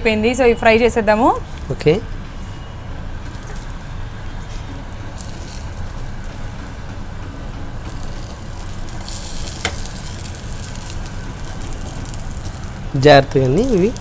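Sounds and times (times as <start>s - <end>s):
cutlets sizzling in a frying pan: 5.0s - 14.0s.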